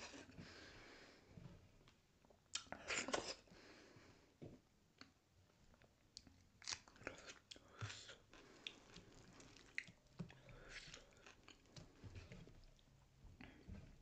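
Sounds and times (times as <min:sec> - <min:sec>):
chewing and wet mouth clicks: 0:08.3 - 0:12.8.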